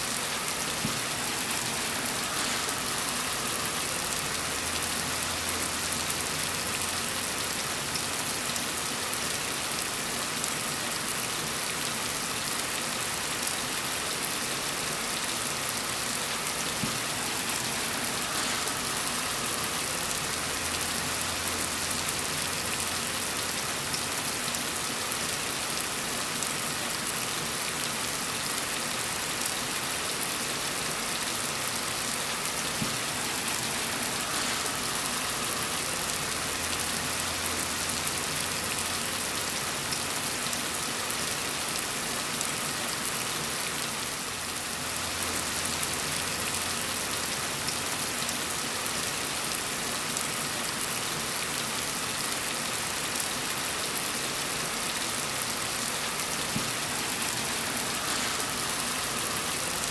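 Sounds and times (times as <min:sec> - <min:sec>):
heavy rain pattering: 0:00.0 - 0:59.9.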